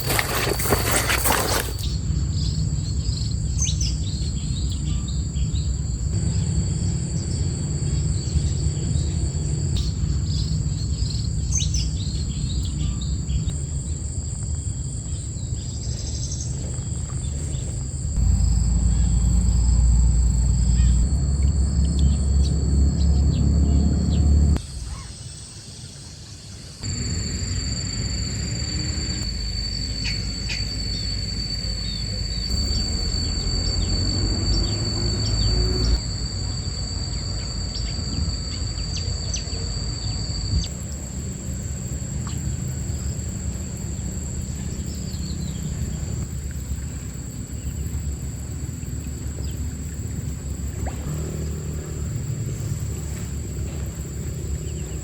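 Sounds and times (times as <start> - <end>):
high-pitched insect trilling: 0.0 - 25.9, 26.8 - 55.0
low rumble: 17.2 - 24.6, 26.8 - 39.4
bird chirps: 18.2 - 25.2, 26.8 - 36.1.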